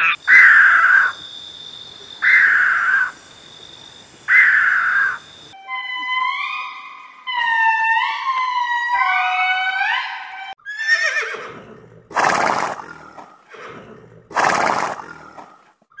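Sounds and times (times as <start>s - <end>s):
wailing notes sliding in pitch: 5.6s - 10.4s
horse whinnying and neighing: 10.6s - 12.9s.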